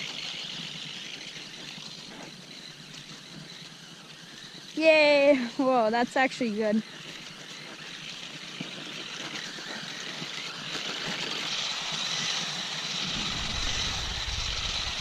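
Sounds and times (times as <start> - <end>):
toy car electric motor whine: 0.0 - 15.0
low rumble: 13.0 - 15.0.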